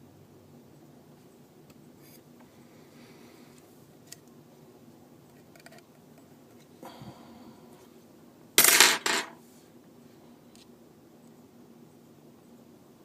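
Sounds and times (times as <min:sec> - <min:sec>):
metal object clattering on hard surface: 0:08.6 - 0:09.4.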